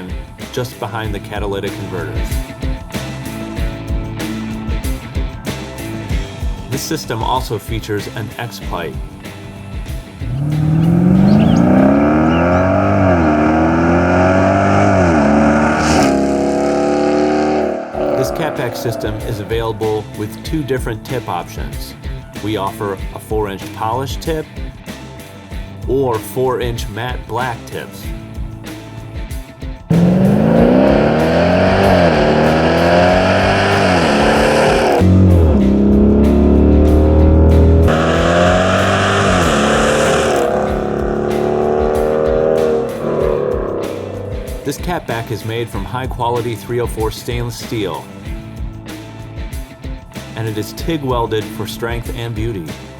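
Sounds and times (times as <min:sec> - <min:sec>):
engine exhaust accelerating: 0:09.3 - 0:20.6, 0:29.9 - 0:46.1.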